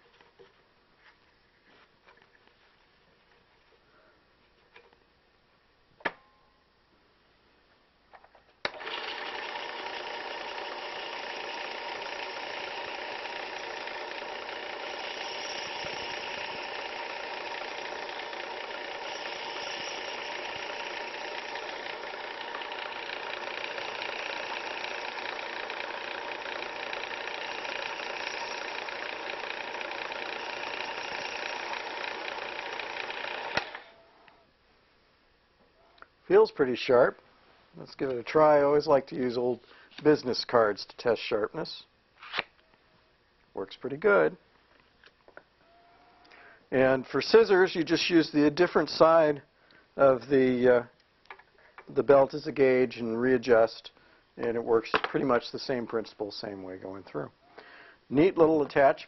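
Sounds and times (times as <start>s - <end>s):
electric sharpener whining: 8.7s - 34.1s.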